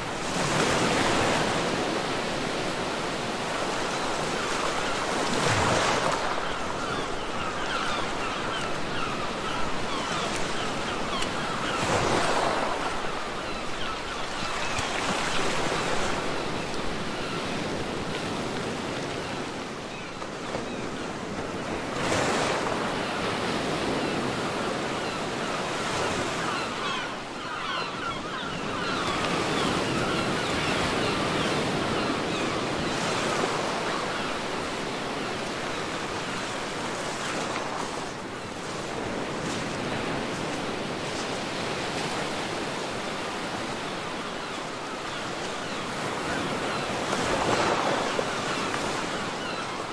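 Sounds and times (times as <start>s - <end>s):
ocean waves breaking on beach: 0.0s - 49.9s.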